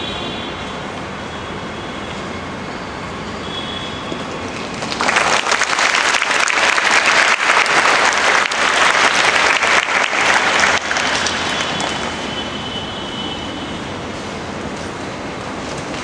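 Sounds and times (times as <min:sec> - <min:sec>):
audience applauding: 0:04.3 - 0:12.5.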